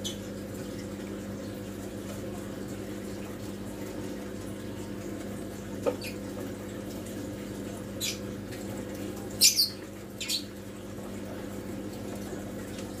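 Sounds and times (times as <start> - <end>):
filter pump humming: 0.0 - 13.0
water trickling: 0.0 - 13.0
small bird chirping: 9.4 - 10.5.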